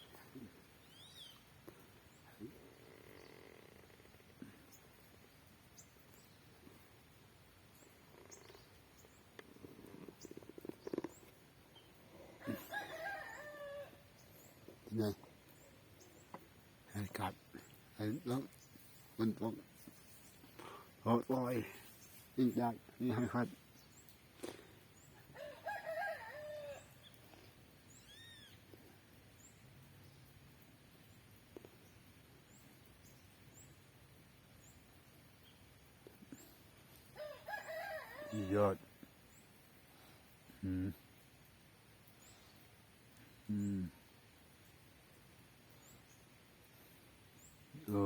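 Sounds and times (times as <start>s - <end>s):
high bird chirp: 0.8s - 1.4s
rooster crowing: 12.4s - 14.1s, 25.3s - 27.0s, 37.2s - 38.6s.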